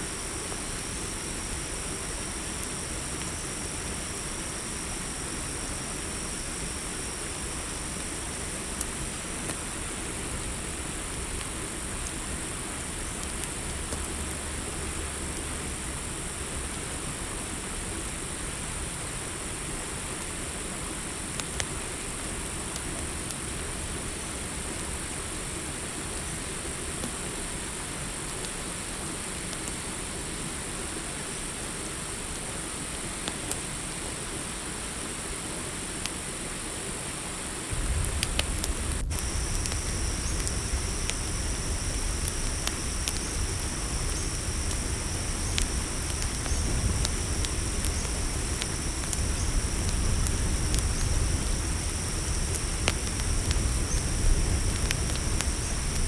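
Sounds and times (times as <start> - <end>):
low insect trill: 0.0 - 10.0, 37.7 - 56.0
campfire crackling: 0.0 - 32.4, 36.9 - 56.0
crickets chorus: 0.0 - 56.0
low rumble: 37.7 - 55.9.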